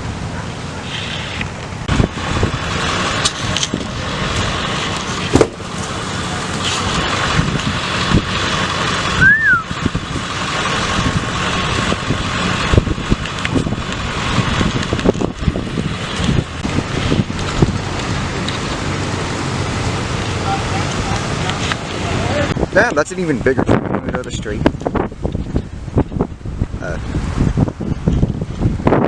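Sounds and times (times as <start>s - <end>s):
car road and wind noise: 0.0s - 29.0s
knocks and bumps: 5.1s - 5.7s
short rising and falling chirp: 9.2s - 9.7s.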